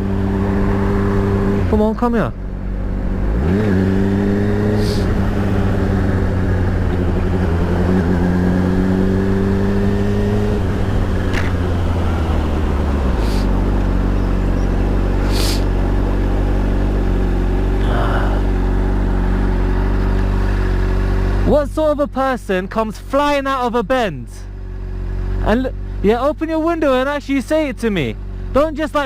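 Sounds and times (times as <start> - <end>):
motorcycle engine revving: 0.0 - 21.6.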